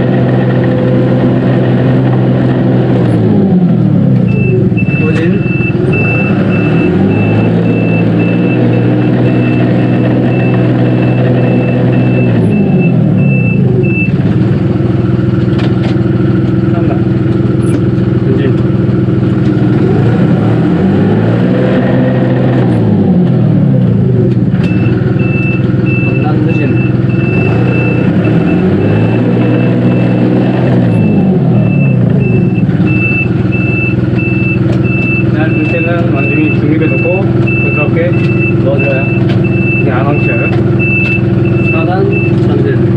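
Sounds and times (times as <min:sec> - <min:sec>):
tractor diesel engine running: 0:00.0 - 0:42.9
high-pitched beep: 0:04.3 - 0:14.2, 0:24.7 - 0:42.4.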